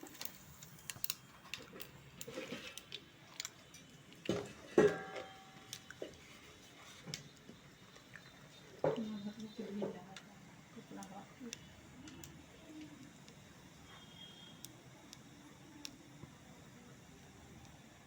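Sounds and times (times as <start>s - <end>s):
metal cookware clinking: 4.3s - 5.6s.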